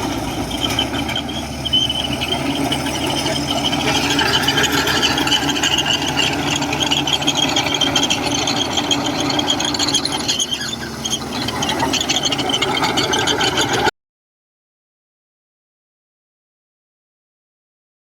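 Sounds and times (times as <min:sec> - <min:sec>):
crawler tracks squealing and clicking: 0:00.0 - 0:13.9
diesel engine running: 0:00.0 - 0:13.9.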